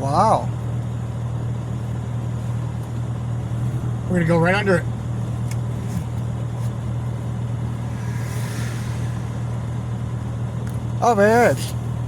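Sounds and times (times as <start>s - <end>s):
car engine hum and road noise: 0.0s - 12.0s
soft rushing swell: 7.4s - 10.9s.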